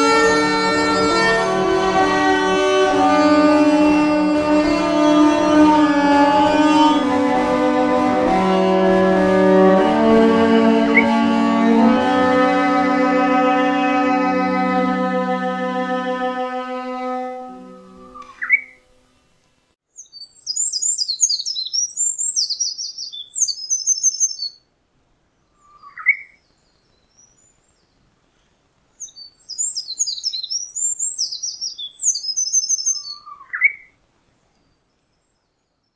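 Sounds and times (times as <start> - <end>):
short rising lower note: 0.0 - 18.7
songbird high warbling: 10.8 - 11.4, 17.6 - 18.8, 20.0 - 24.6, 25.6 - 27.9, 29.0 - 33.9.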